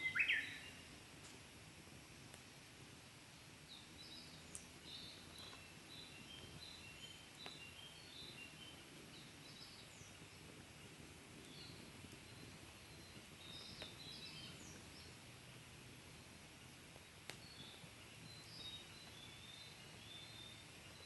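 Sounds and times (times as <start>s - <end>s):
birds chirping: 0.0s - 0.8s, 11.4s - 15.2s
wood fire burning: 0.0s - 21.0s
fire popping: 0.8s - 21.0s.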